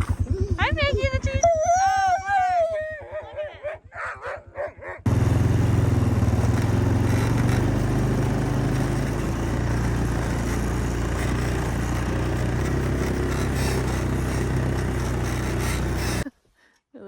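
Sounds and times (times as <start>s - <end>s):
quad engine running: 0.0s - 3.0s, 5.0s - 16.3s.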